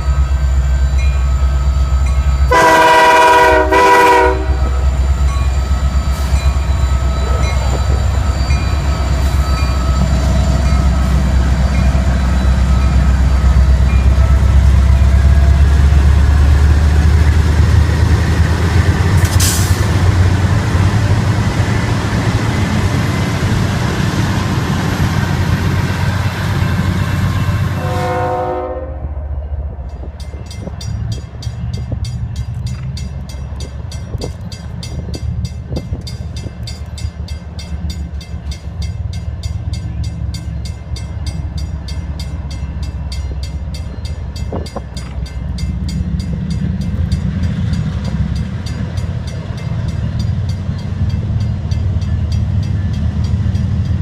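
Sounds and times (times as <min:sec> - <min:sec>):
train rumbling past: 0:00.0 - 0:54.0
train horn blast: 0:02.5 - 0:05.0, 0:27.2 - 0:29.4.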